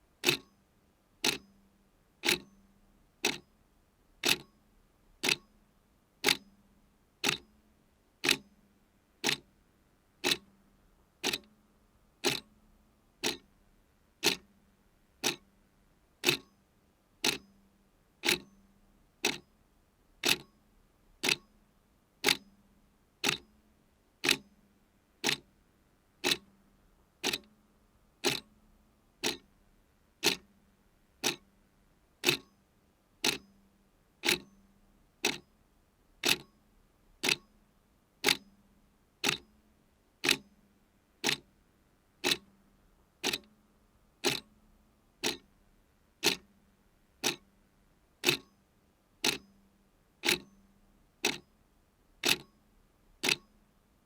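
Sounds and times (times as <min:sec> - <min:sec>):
mechanical clock ticking: 0:00.2 - 0:00.5, 0:01.2 - 0:01.6, 0:02.2 - 0:02.5, 0:03.2 - 0:03.4, 0:04.2 - 0:04.5, 0:05.2 - 0:05.5, 0:06.2 - 0:06.4, 0:07.2 - 0:07.5, 0:08.2 - 0:08.5, 0:09.2 - 0:09.5, 0:10.2 - 0:10.5, 0:11.2 - 0:11.5, 0:12.2 - 0:12.5, 0:13.2 - 0:13.5, 0:14.2 - 0:14.5, 0:15.2 - 0:15.5, 0:16.2 - 0:16.6, 0:17.2 - 0:17.6, 0:18.2 - 0:18.5, 0:19.2 - 0:19.4, 0:20.2 - 0:20.5, 0:21.2 - 0:21.5, 0:22.2 - 0:22.4, 0:23.2 - 0:23.5, 0:24.2 - 0:24.4, 0:25.2 - 0:25.5, 0:26.2 - 0:26.5, 0:27.2 - 0:27.5, 0:28.2 - 0:28.5, 0:29.2 - 0:29.5, 0:30.2 - 0:30.5, 0:31.2 - 0:31.5, 0:32.2 - 0:32.6, 0:33.2 - 0:33.6, 0:34.2 - 0:34.6, 0:35.2 - 0:35.5, 0:36.2 - 0:36.6, 0:37.2 - 0:37.5, 0:38.2 - 0:38.5, 0:39.2 - 0:39.5, 0:40.2 - 0:40.5, 0:41.2 - 0:41.5, 0:42.2 - 0:42.5, 0:43.2 - 0:43.6, 0:44.2 - 0:44.5, 0:45.2 - 0:45.5, 0:46.2 - 0:46.5, 0:47.2 - 0:47.5, 0:48.2 - 0:48.6, 0:49.2 - 0:49.6, 0:50.2 - 0:50.6, 0:51.2 - 0:51.5, 0:52.2 - 0:52.6, 0:53.2 - 0:53.5.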